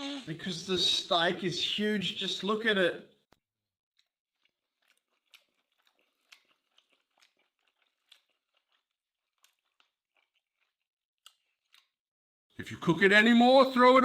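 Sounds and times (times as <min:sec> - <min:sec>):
mouth chewing wetly: 0:04.0 - 0:12.0.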